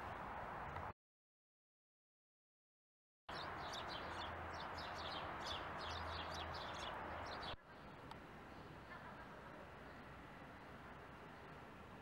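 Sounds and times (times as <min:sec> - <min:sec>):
steady street hum: 0:00.0 - 0:00.9, 0:03.3 - 0:12.0
small birds chirping: 0:03.3 - 0:11.6.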